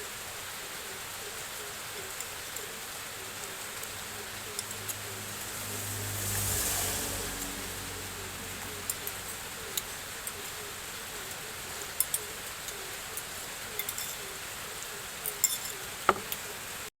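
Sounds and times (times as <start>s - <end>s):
rain hissing: 0.0s - 16.9s
utensils clinking on bowl: 11.8s - 16.5s.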